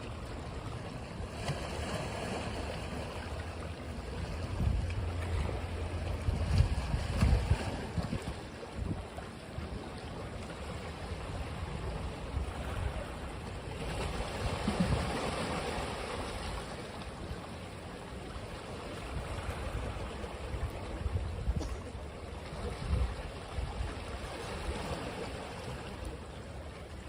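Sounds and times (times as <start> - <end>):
ocean waves breaking on beach: 0.0 - 27.0
wind rumble on microphone: 4.1 - 10.3, 11.1 - 16.5, 19.0 - 25.0.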